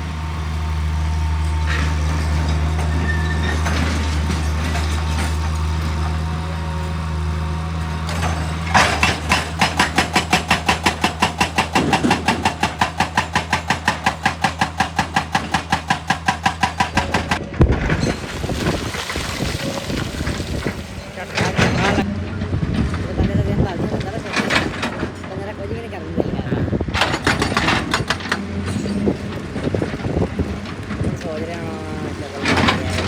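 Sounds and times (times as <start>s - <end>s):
heavy diesel engine running: 0.0s - 33.0s
hydraulic hammer pounding rock: 8.0s - 26.3s, 26.9s - 33.0s.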